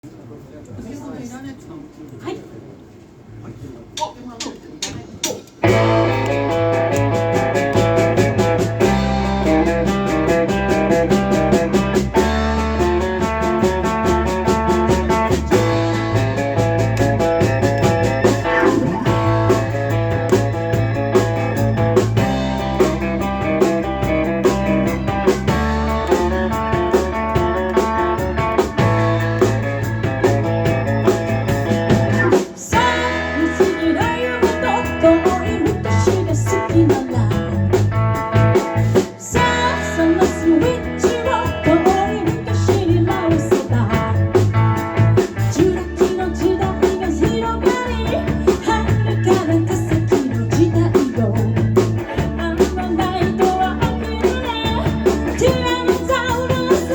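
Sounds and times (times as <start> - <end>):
rock band playing: 5.6 - 56.9
person singing: 32.2 - 37.6, 39.2 - 44.2, 45.6 - 56.9.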